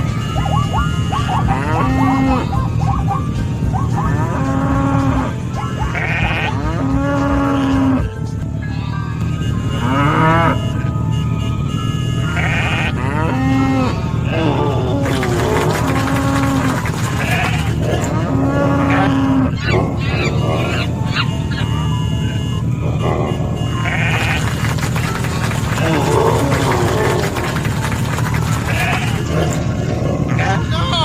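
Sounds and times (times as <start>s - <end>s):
music: 0.0s - 9.8s
cattle mooing: 0.6s - 2.7s, 3.9s - 10.8s, 12.2s - 30.8s
sheep bleating: 1.4s - 2.6s, 4.2s - 10.6s, 12.2s - 22.0s, 22.8s - 24.7s, 28.4s - 29.7s, 30.3s - 30.9s.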